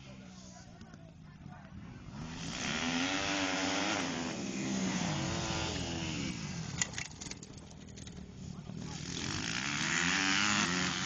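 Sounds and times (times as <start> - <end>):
motocross motorcycles revving past: 1.7 - 7.1, 8.3 - 11.0.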